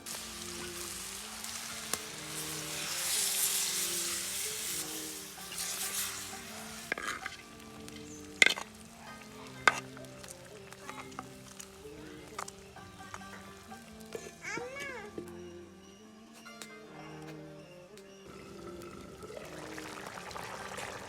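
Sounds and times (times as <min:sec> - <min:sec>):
food sizzling in hot oil: 0:00.0 - 0:12.8, 0:18.4 - 0:21.0.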